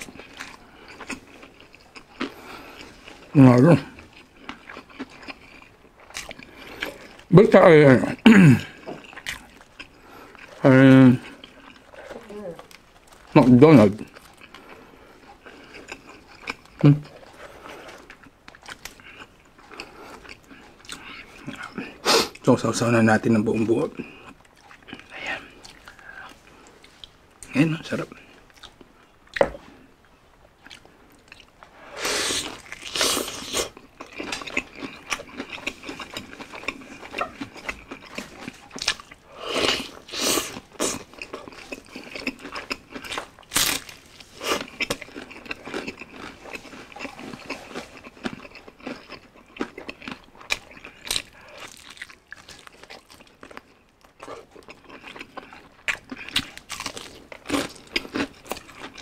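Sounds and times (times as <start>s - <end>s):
crunching fried chicken: 0.0s - 26.7s, 30.6s - 59.0s.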